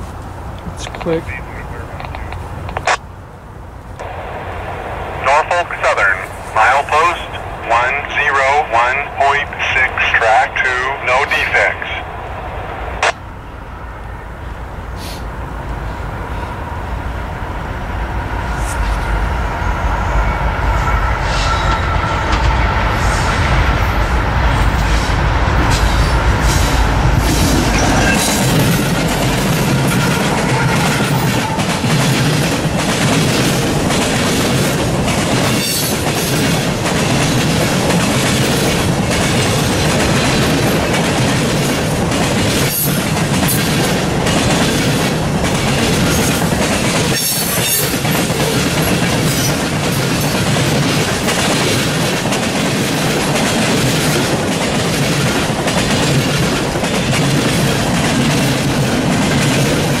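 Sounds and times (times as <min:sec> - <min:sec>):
freight train rumbling: 0:00.0 - 1:00.0
train wheels clacking: 0:24.6 - 1:00.0.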